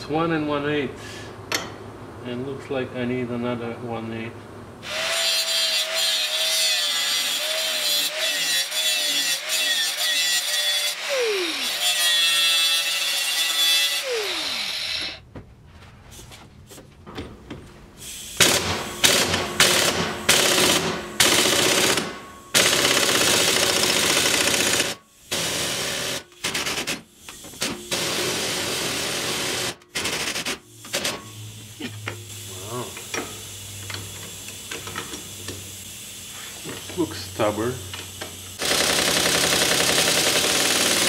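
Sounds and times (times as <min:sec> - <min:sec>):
impact wrench hammering: 0:01.5 - 0:01.8, 0:18.4 - 0:27.0, 0:38.6 - 0:41.0.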